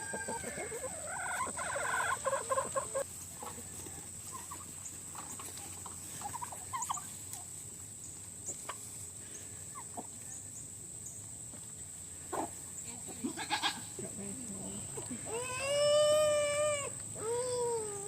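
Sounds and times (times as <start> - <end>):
poultry calls: 0.0 - 7.6
turkey gobbling: 0.0 - 7.6.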